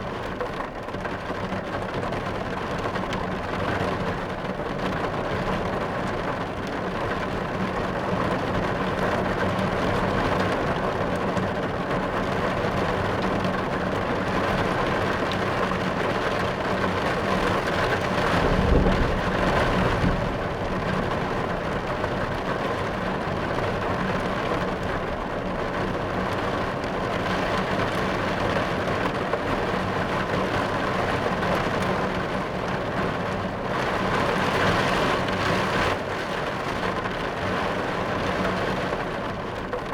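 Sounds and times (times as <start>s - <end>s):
rain drumming on car roof: 0.0s - 39.9s
low thunder roll: 18.1s - 22.2s.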